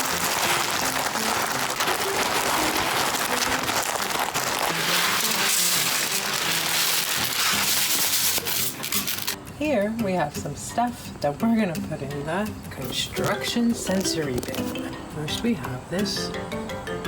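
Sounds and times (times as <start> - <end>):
rice rustling in plastic bin: 0.0 - 9.4
light background music: 0.0 - 17.0.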